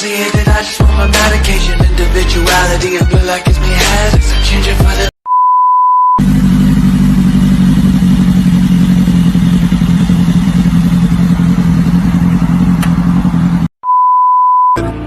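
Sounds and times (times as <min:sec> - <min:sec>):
motorcycle engine running loudly: 0:06.2 - 0:13.7
short click: 0:12.8 - 0:13.0.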